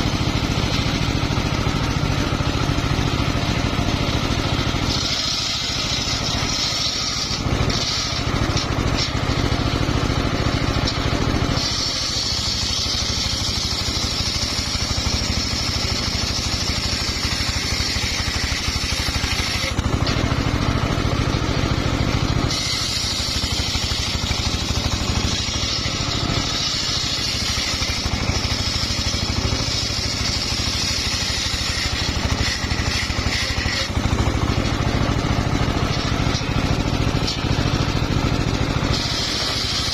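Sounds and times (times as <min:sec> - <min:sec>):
saw blade ripping through log: 0:00.0 - 0:39.9
sawmill engine running: 0:00.0 - 0:39.9.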